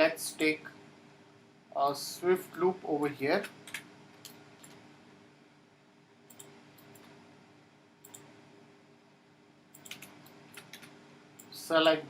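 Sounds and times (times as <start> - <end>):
low room hum: 0.0 - 12.0
computer mouse clicking: 3.4 - 4.8, 6.3 - 7.2, 8.0 - 8.3, 9.7 - 11.5.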